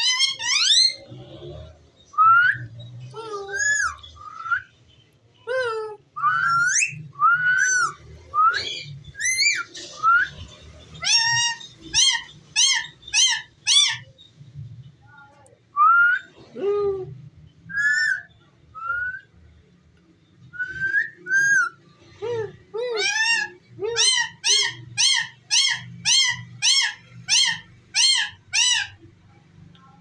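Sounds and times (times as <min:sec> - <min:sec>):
parakeet whistling: 0:06.2 - 0:10.4, 0:20.6 - 0:21.8.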